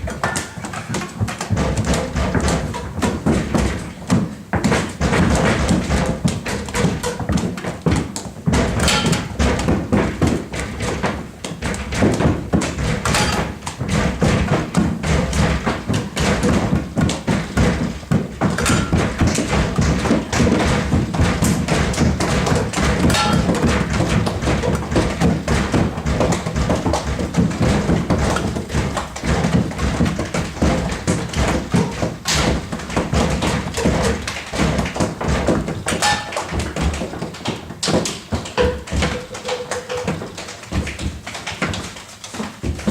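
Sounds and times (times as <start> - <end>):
people stamping and tapping feet: 0.0 - 42.9.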